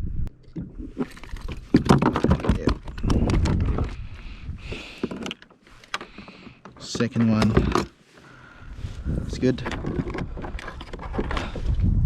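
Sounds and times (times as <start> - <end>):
knocks and thuds on kayak: 1.5 - 4.0.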